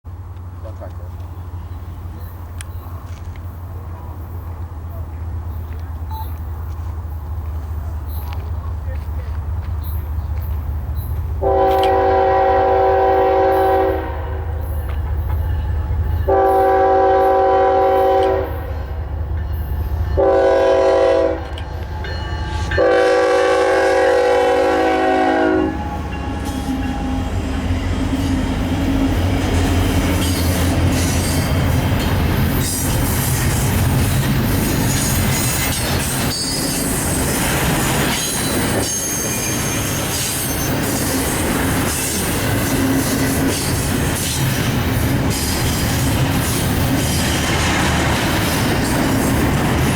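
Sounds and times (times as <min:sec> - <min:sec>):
locomotive air horn blasts: 0:11.4 - 0:14.6, 0:16.3 - 0:18.8, 0:20.2 - 0:21.6, 0:22.6 - 0:27.1
train wheels clacking on rails: 0:25.8 - 0:49.9
wheel squeals: 0:34.0 - 0:44.4.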